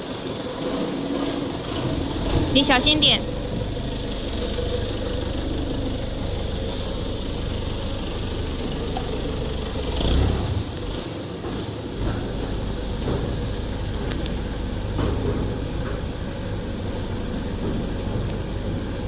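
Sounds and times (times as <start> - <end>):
low mechanical hum: 0.0 - 19.0
low rumble: 1.4 - 11.0.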